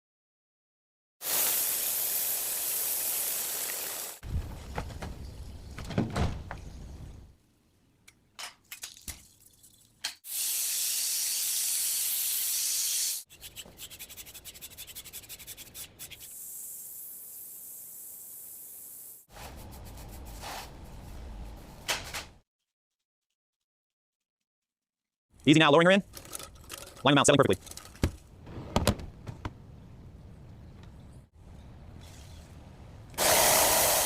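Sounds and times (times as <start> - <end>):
spraying hiss: 1.2 - 4.2, 10.3 - 13.3, 16.2 - 19.3, 33.2 - 34.0.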